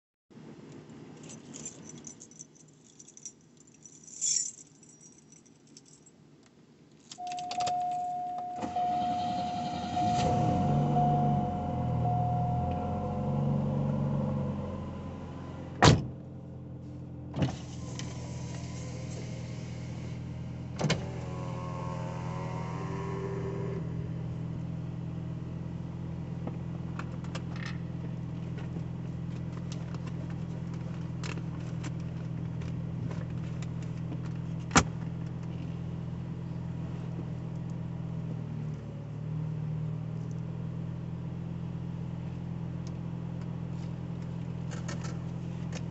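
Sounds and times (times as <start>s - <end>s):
brief wavering whine: 7.2s - 15.1s
car engine idling: 7.7s - 36.7s.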